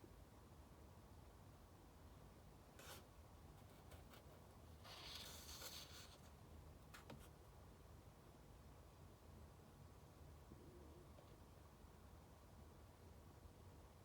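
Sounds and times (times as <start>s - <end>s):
book page turning: 4.9s - 6.2s.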